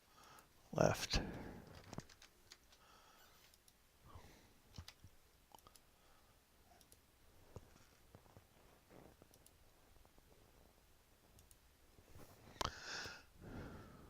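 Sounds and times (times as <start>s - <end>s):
computer mouse clicks: 1.3s - 3.8s, 4.7s - 5.9s, 6.7s - 7.0s, 9.2s - 9.6s, 11.4s - 11.6s.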